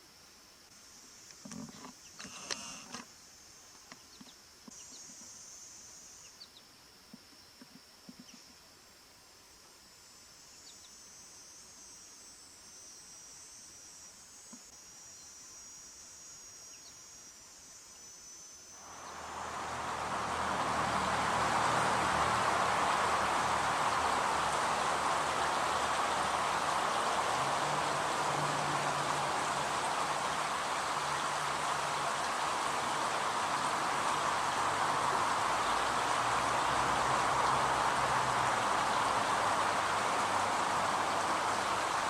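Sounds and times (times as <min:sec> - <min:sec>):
insect chorus: 0:00.0 - 0:42.0
loud rushing noise: 0:18.9 - 0:42.0.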